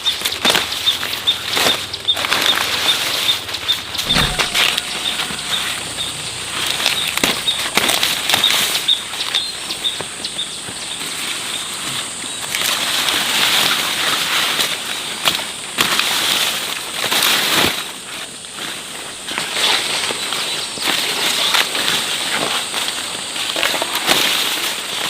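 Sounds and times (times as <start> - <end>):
dry vegetation rustling: 0.1 - 25.0
faint high tone: 4.1 - 6.7.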